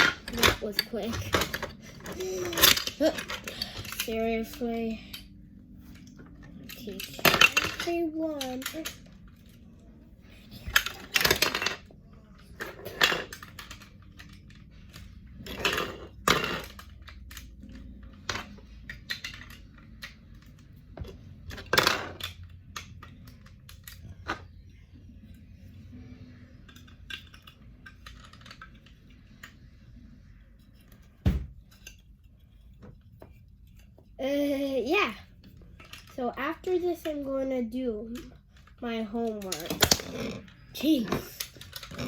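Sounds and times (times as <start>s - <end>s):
plastic bricks clicking together: 12.5s - 20.8s, 21.4s - 24.5s, 26.6s - 29.6s, 38.1s - 42.0s.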